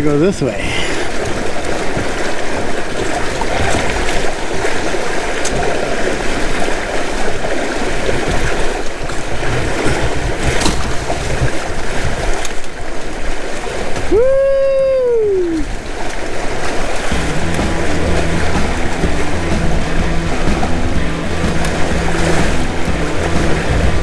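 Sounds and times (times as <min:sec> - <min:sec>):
water rushing along hulls: 0:00.0 - 0:24.0.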